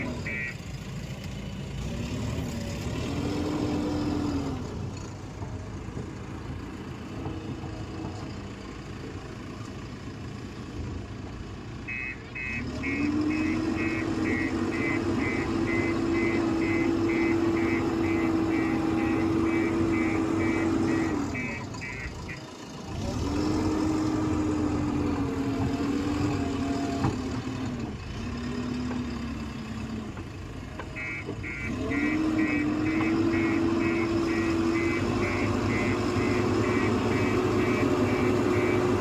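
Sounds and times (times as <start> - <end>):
diesel engine revving: 0.0 - 39.0
reversing alarm beeps: 0.2 - 0.6, 11.9 - 22.4, 31.0 - 39.0.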